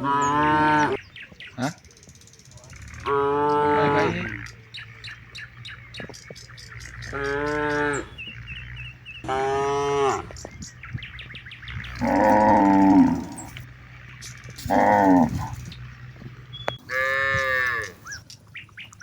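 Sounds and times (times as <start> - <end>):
cattle mooing: 0.0 - 1.0, 2.7 - 18.2
bird chirps: 0.0 - 19.0.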